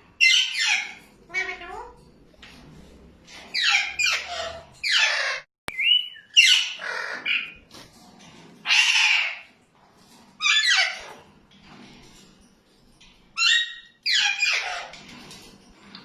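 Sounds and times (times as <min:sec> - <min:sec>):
parakeets squawking: 0:00.2 - 0:02.0, 0:03.5 - 0:07.6, 0:08.6 - 0:09.6, 0:10.4 - 0:11.2, 0:13.4 - 0:15.1.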